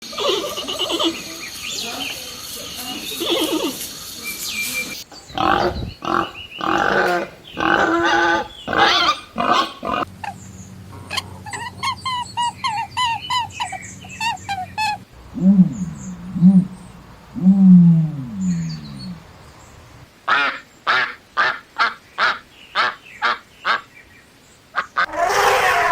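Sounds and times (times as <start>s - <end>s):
low falling animal calls: 5.0s - 10.1s, 14.8s - 20.0s
animal grunting: 5.1s - 10.1s, 15.2s - 19.4s
quick high animal calls: 5.3s - 10.1s.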